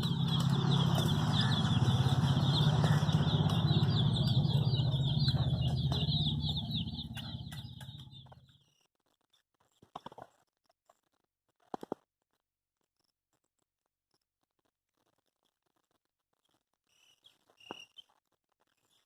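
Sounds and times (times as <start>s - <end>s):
steady low rumble: 0.0s - 8.4s
baby chicks peeping: 0.0s - 8.6s, 17.0s - 18.2s.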